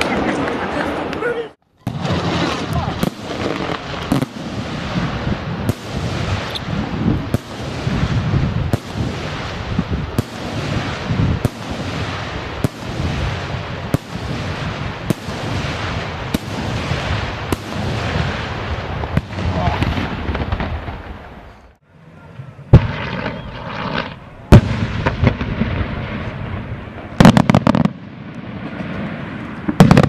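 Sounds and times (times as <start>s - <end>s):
fireworks crackling: 0.0s - 30.0s
fireworks bursting with bangs: 1.8s - 21.8s, 22.7s - 30.0s.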